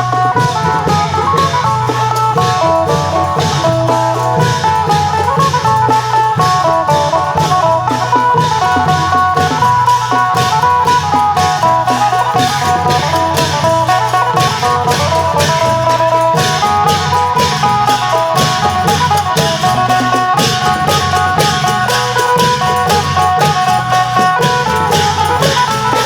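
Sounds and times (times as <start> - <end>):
low drumming: 0.0 - 26.0
lute plucking melody: 0.0 - 26.0
sharp percussion strokes: 0.0 - 26.0.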